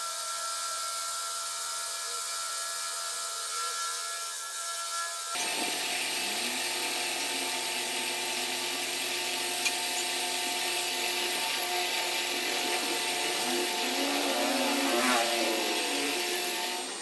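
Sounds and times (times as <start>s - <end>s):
power tool motor running: 5.3s - 17.0s.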